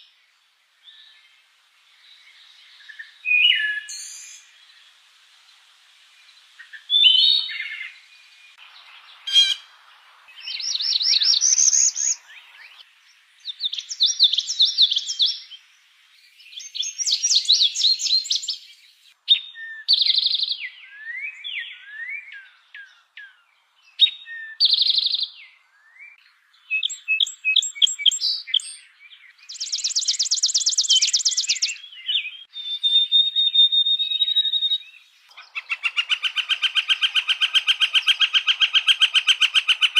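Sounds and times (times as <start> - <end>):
songbird trilling and chirping: 6.6 - 12.8, 13.4 - 15.6, 16.4 - 39.9.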